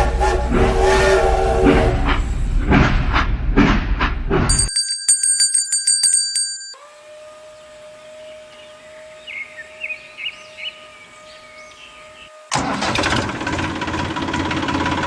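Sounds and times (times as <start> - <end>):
high ringing with clicks: 4.5 - 6.8
train chugging clatter: 13.4 - 15.0.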